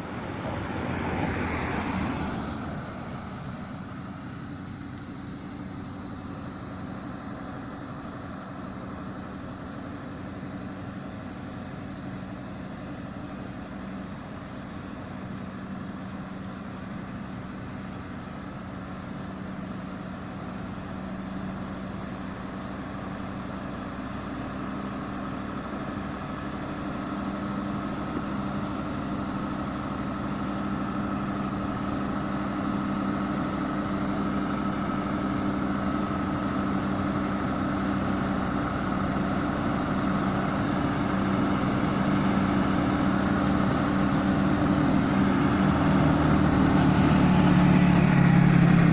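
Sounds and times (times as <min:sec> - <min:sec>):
truck diesel engine running: 0:19.2 - 0:48.9.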